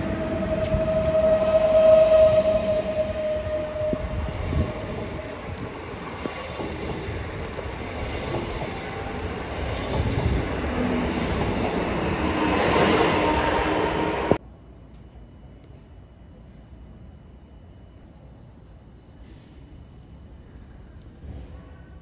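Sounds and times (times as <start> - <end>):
steady high tone: 0.0 - 6.3
electric train passing: 0.0 - 14.4.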